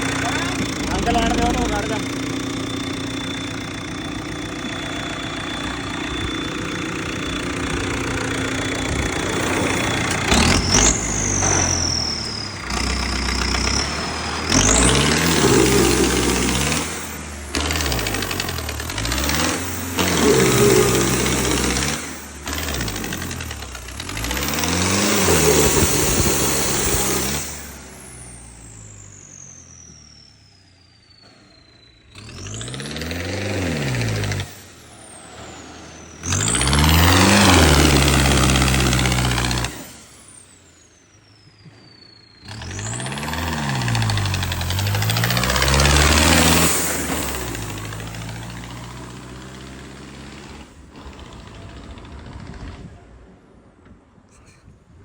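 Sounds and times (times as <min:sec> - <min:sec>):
high turbo whistle: 0:00.0 - 0:18.2
tractor diesel engine revving: 0:00.0 - 0:53.2.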